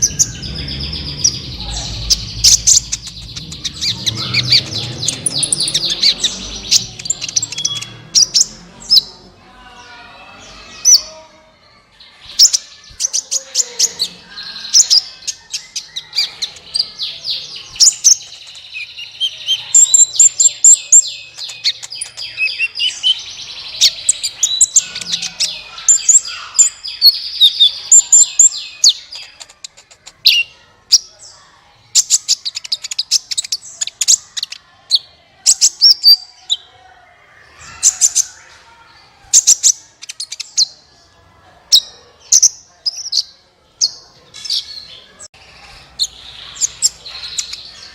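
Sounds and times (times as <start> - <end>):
sunbird twittering song: 0.0 - 9.1.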